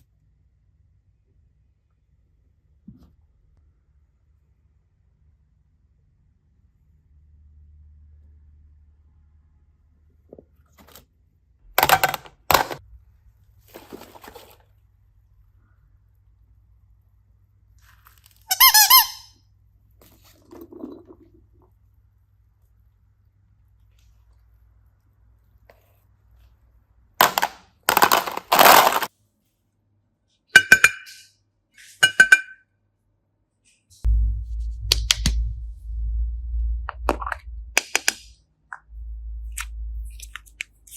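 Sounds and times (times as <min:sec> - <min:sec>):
small hard objects clinking: 0:27.2 - 0:29.1
low hum: 0:34.0 - 0:40.9.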